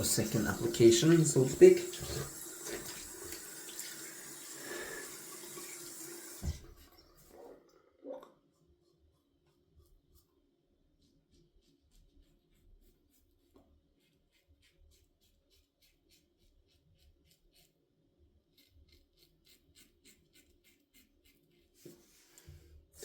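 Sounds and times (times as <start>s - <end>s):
razor scraping stubble: 18.4s - 21.8s.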